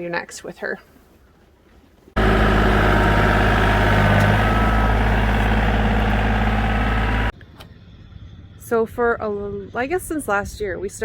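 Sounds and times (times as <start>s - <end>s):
heavy engine idling: 2.2s - 7.3s.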